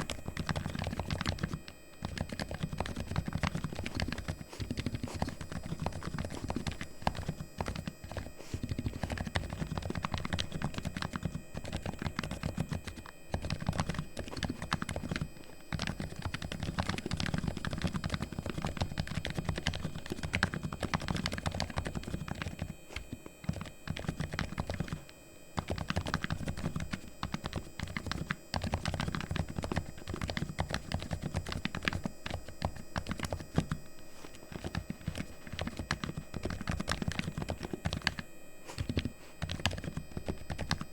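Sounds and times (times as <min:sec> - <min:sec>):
keyboard keystroke clacks: 0:34.4 - 0:40.8.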